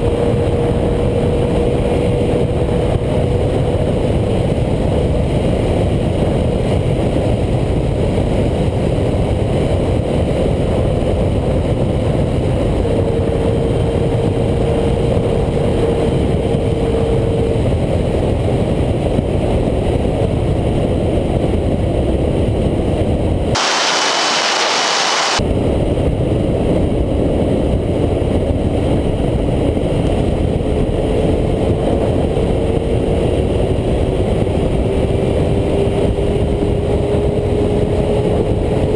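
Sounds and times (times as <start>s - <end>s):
high-revving engine whine: 23.6s - 25.4s
wind rushing over microphone: 23.6s - 25.4s.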